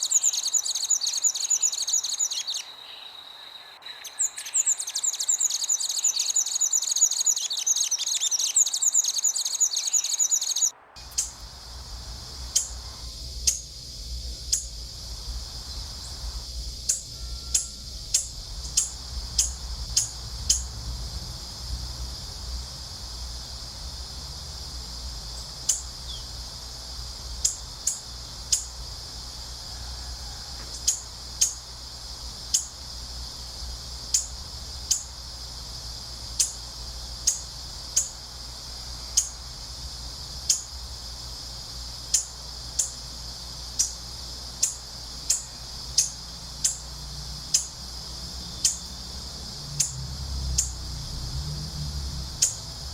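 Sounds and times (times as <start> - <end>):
bird chirping: 0.0 - 11.5, 12.5 - 13.8, 14.4 - 20.8, 25.3 - 28.8, 32.3 - 32.9
steady high hiss: 0.0 - 52.9
low wind rumble: 10.6 - 41.8, 46.2 - 52.9.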